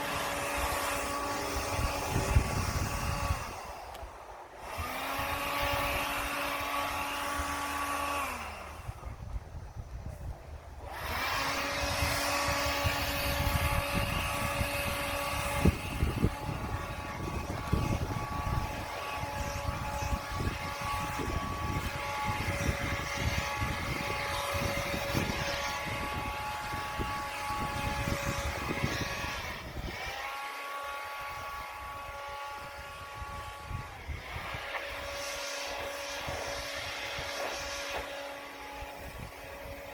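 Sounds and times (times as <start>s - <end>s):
rush of air: 0.0s - 6.2s
snow blower engine running: 0.0s - 9.4s, 10.2s - 39.9s.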